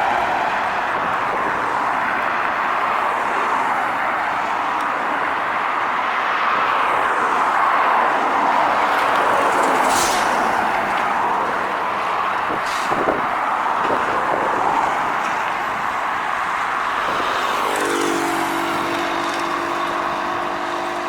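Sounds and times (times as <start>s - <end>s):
heavy truck passing: 8.6s - 21.0s.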